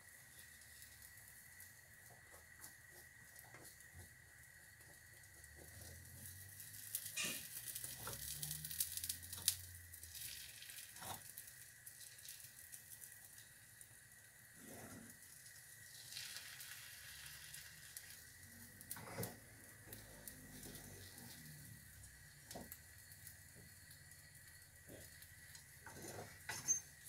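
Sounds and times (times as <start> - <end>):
omelette sizzling in a pan: 0.0 - 27.0
spatula scraping and tapping pan: 24.9 - 27.0.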